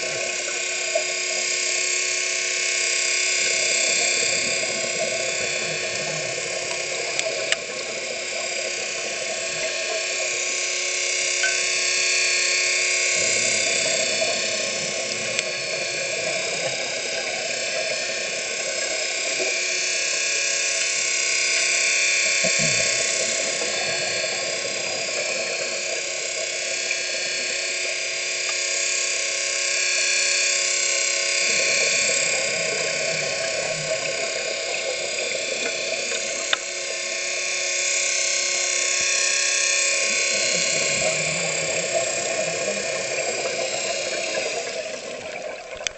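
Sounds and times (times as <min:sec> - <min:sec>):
drilling machinery whine: 0:00.0 - 0:45.9.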